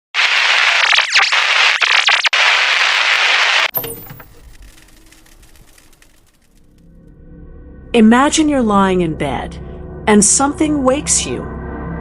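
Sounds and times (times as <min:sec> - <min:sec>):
loud static hiss: 0:00.2 - 0:06.5
falling glitch sweeps: 0:00.5 - 0:06.4.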